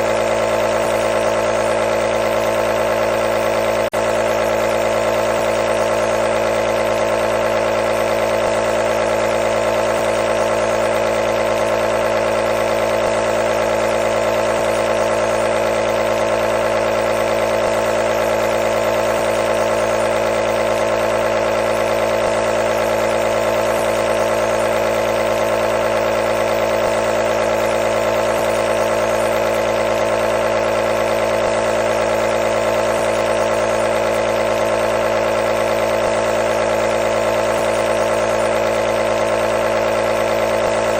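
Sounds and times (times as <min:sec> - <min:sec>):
nebulizer motor humming: 0:00.0 - 0:40.9.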